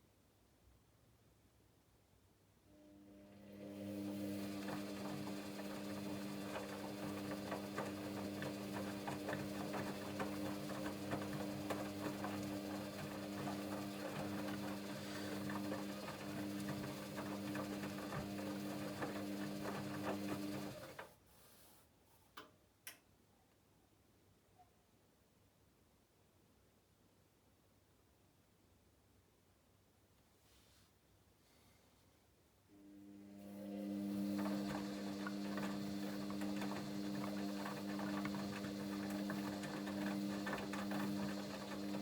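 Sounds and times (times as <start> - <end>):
washing machine motor hum: 2.8 - 21.1, 32.8 - 42.0
rapid clicking and rattling: 34.4 - 42.0.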